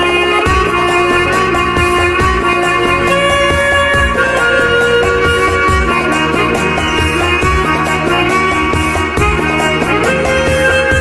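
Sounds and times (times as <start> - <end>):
backing track with steady beat: 0.0 - 11.0
harmonica melody: 0.0 - 11.0.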